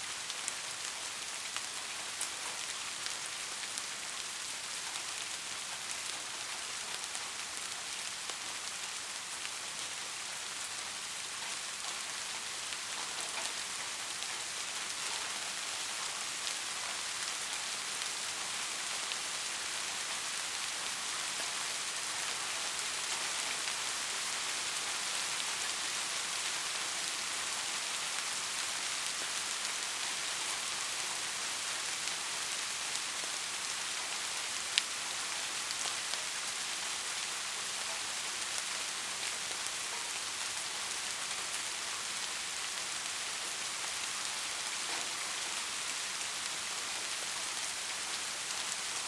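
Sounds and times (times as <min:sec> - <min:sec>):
rain falling: 0:00.0 - 0:49.0.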